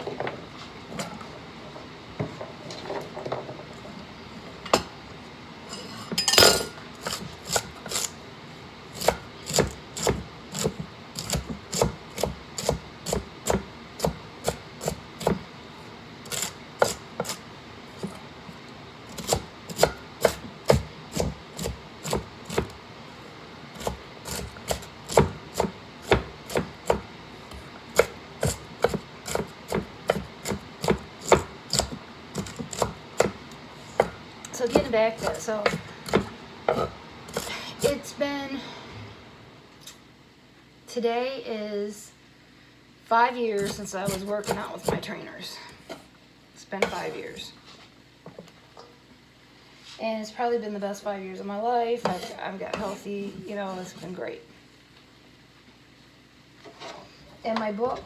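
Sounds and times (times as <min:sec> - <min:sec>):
knife chopping on cutting board: 0:07.0 - 0:08.1, 0:09.0 - 0:15.4, 0:16.3 - 0:17.4, 0:19.1 - 0:22.8, 0:23.8 - 0:38.0, 0:43.6 - 0:45.1.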